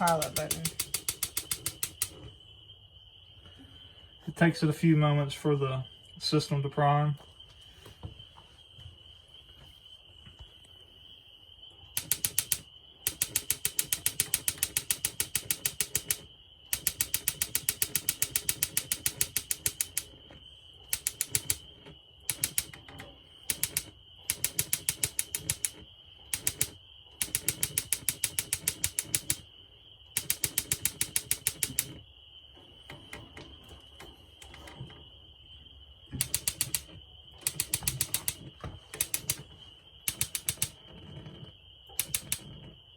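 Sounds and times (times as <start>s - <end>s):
spark igniter clicking rapidly: 0.0s - 2.2s, 12.0s - 20.2s, 20.9s - 21.6s, 22.3s - 22.8s, 23.4s - 29.4s, 30.2s - 32.0s, 36.2s - 38.4s, 39.0s - 39.4s, 40.1s - 40.8s, 42.0s - 42.5s.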